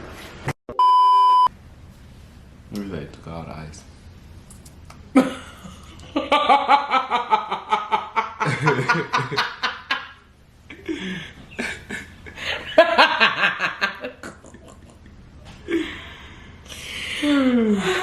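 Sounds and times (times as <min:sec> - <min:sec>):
people laughing: 0:05.2 - 0:16.1.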